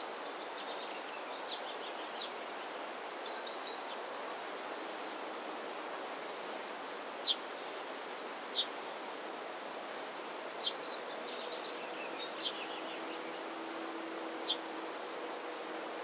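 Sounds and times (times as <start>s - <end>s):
faint bird twitter: 10.6s - 13.4s.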